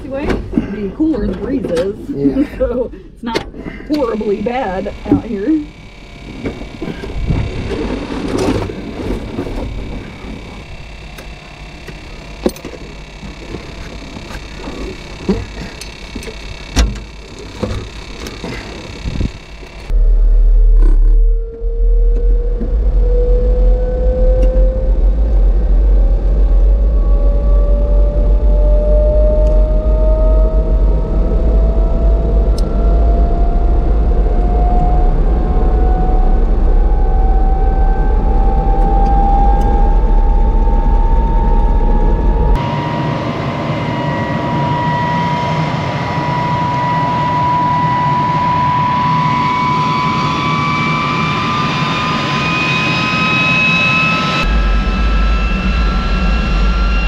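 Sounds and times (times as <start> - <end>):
jet engine low rumble: 0.0 - 57.0
jet engine whine: 0.0 - 57.0.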